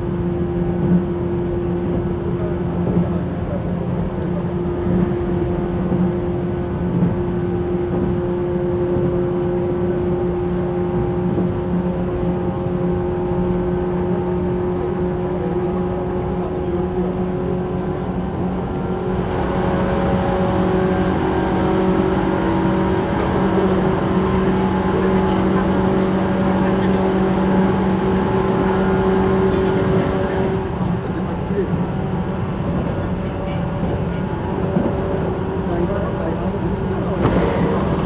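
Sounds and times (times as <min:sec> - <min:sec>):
train running noise rushing: 0:18.2 - 0:38.0
electric train motor hum: 0:18.4 - 0:38.0.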